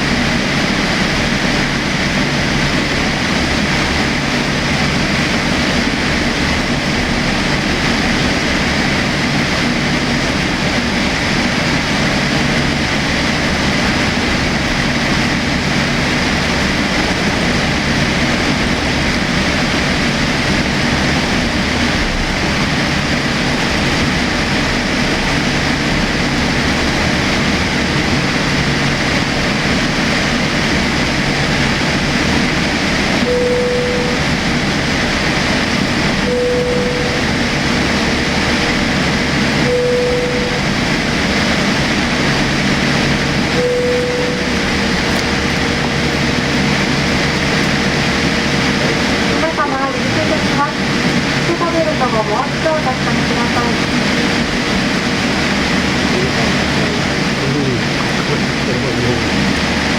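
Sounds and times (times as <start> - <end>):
airliner cabin noise: 0.0 - 59.9
short single tone: 33.2 - 34.5, 36.2 - 37.6, 39.6 - 40.9, 43.5 - 46.5.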